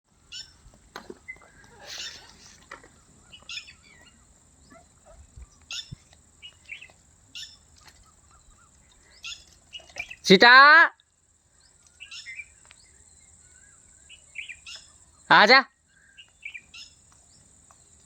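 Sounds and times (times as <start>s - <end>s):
bird chirping: 0.2s - 18.0s.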